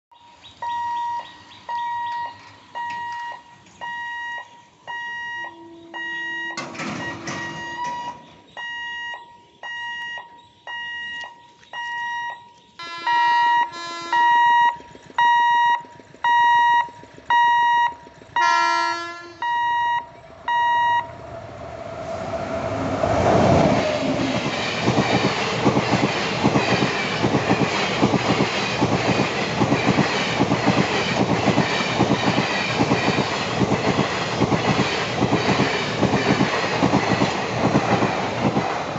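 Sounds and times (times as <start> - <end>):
level crossing warning beeps: 0.2 - 18.5, 19.4 - 21.2
train horn: 5.5 - 6.2, 12.8 - 14.5, 18.4 - 19.8
wheels clacking over rail joints: 6.6 - 8.5, 13.7 - 21.4, 22.8 - 38.9
train passing with roar: 12.8 - 38.9.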